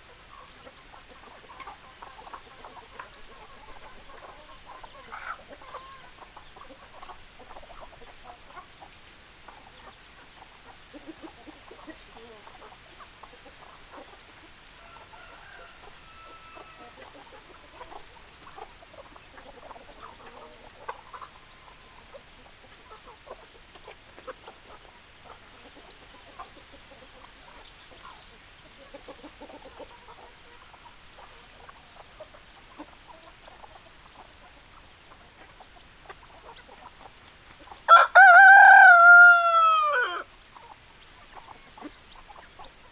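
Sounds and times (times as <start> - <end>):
chickens clucking: 0.0 - 42.9
rooster crowing: 14.8 - 17.0, 37.9 - 40.3.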